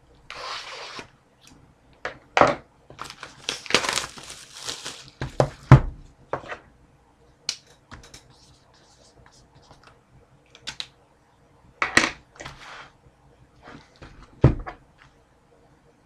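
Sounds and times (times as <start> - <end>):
shrink-wrap crinkling and tearing: 2.9 - 5.3.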